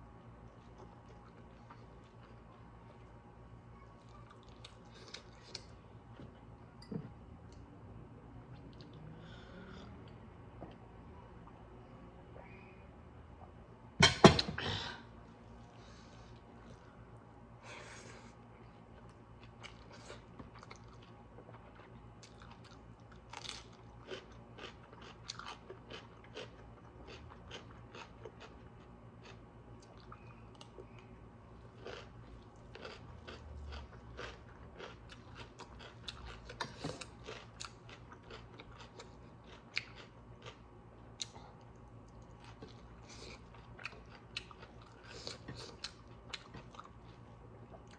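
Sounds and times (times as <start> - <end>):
person chewing crunchy food: 4.0 - 5.8, 18.9 - 47.9.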